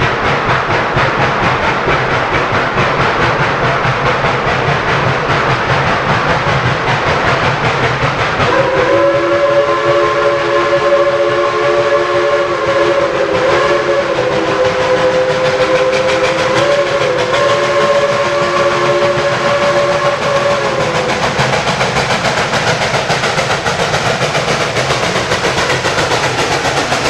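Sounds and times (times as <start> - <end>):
running train noise: 0.0 - 27.0
steam locomotive chime whistle: 8.4 - 21.7.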